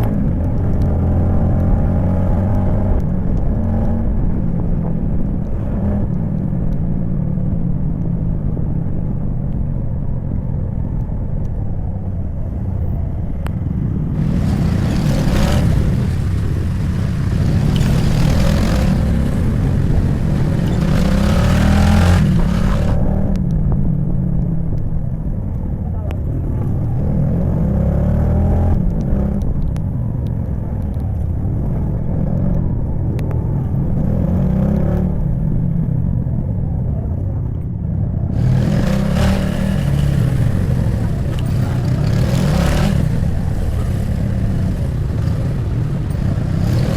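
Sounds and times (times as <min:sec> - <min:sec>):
wind and road rush: 0:00.0 - 0:46.9
motorcycle engine running: 0:13.5 - 0:23.1, 0:38.4 - 0:46.9
loud rushing noise: 0:14.1 - 0:23.1, 0:38.4 - 0:46.9.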